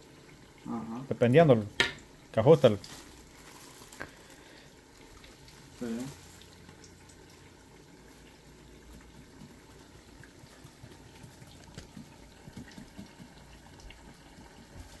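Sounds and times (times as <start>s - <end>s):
food sizzling in hot oil: 1.4s - 8.2s
oil popping: 1.6s - 15.0s.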